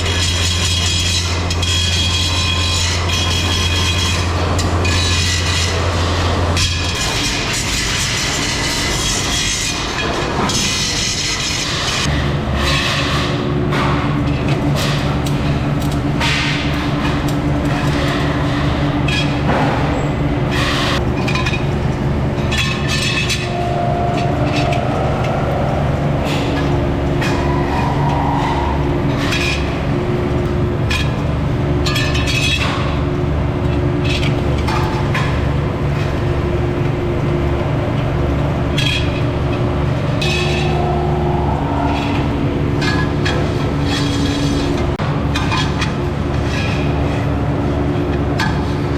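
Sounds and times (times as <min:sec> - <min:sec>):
low machine drone: 0:00.0 - 0:48.9
brief machine whines: 0:23.2 - 0:29.7.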